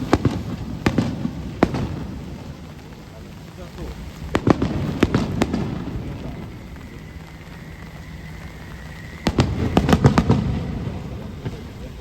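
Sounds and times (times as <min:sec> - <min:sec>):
fireworks bursting: 0:00.0 - 0:12.0
steady rain: 0:00.0 - 0:12.0
faint thin whistle: 0:06.0 - 0:11.9.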